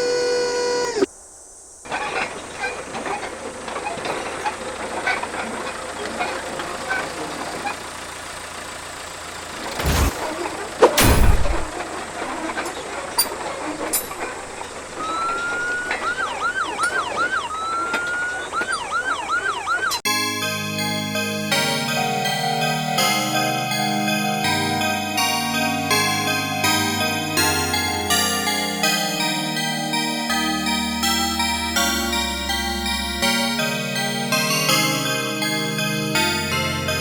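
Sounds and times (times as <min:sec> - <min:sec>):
loud rushing noises: 0:11.0 - 0:11.8
ambulance siren: 0:15.0 - 0:37.0.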